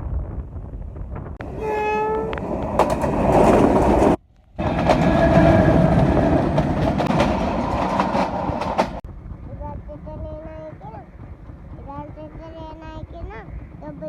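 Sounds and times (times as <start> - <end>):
train horn: 1.4 - 2.4, 4.6 - 6.6
wheels clicking over rail joints: 1.4 - 9.0
train wheels rumbling past: 1.4 - 14.0.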